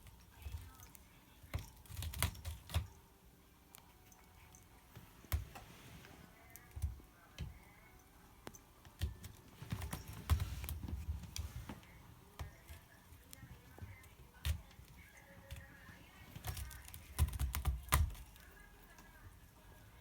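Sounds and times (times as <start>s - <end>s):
cat scratching with claws: 0.0s - 3.0s, 8.9s - 18.6s.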